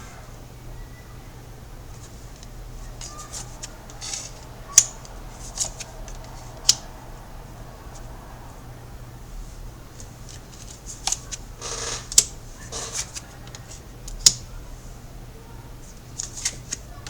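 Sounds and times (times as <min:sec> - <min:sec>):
cards sliding swishes: 0:03.0 - 0:06.9.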